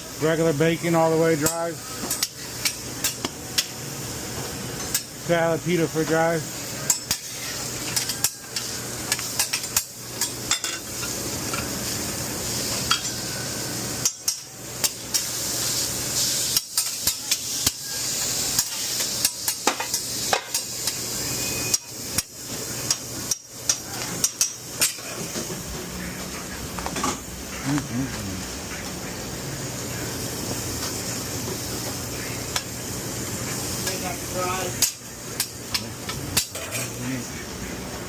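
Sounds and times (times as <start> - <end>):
grill sizzling: 0.0 - 38.0
utensils clanking on metal: 6.8 - 11.6, 36.4 - 37.0.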